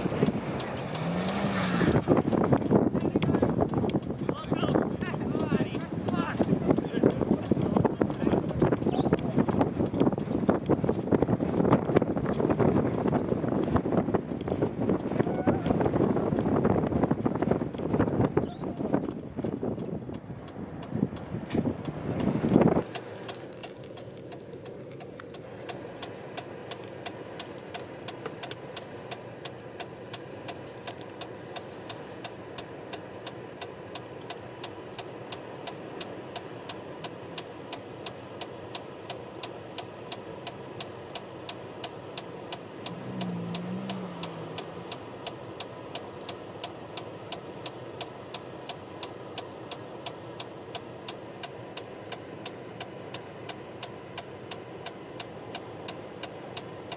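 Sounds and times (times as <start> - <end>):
car engine idling: 0.0 - 56.9
sharp engine ticks: 0.0 - 56.9.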